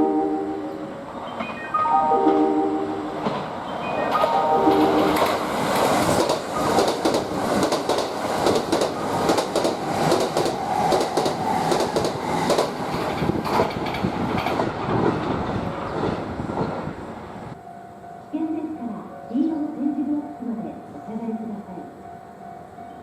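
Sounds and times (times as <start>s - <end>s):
electric train running past: 0.0s - 23.0s
wheels clacking over rail joints: 3.2s - 17.0s.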